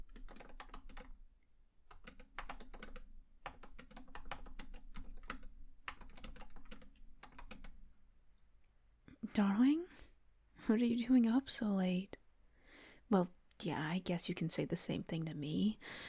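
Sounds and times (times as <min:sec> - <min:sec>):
typing on computer keyboard: 0:00.0 - 0:01.2, 0:01.9 - 0:07.8.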